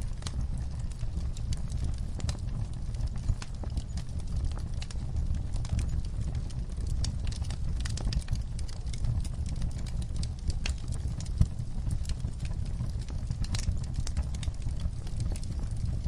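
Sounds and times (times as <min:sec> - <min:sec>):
wood fire crackling: 0:00.0 - 0:16.0
sharp pops and snaps: 0:06.8 - 0:15.9.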